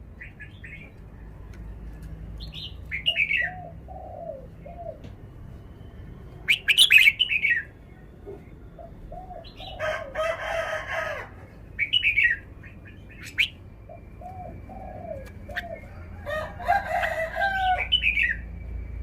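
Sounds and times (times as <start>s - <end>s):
bird singing warbled phrases: 0.2s - 1.0s, 2.4s - 5.1s, 6.4s - 9.9s, 11.7s - 16.1s, 17.6s - 18.6s.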